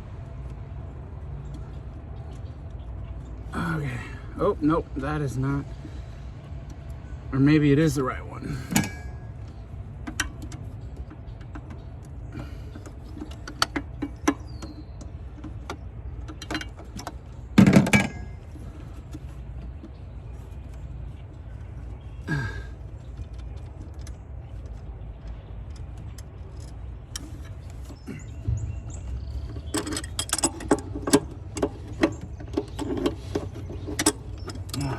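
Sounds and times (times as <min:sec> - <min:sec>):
metal clatter: 0:08.6 - 0:20.1, 0:23.3 - 0:34.9
hand tools clicking on metal: 0:29.5 - 0:34.9.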